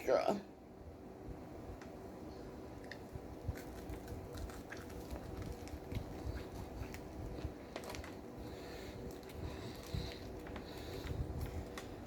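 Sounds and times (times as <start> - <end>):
person chewing crunchy sandwich: 2.8 - 12.0.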